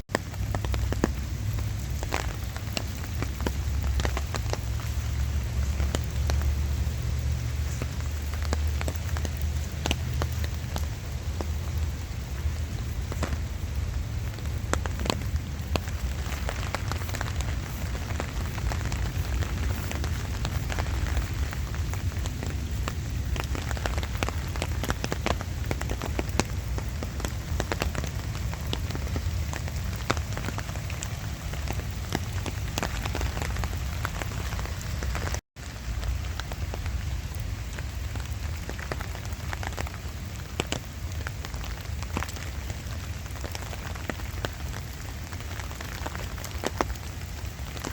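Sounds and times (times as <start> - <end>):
light rain falling: 0.0 - 47.9
footsteps walking: 12.6 - 22.4.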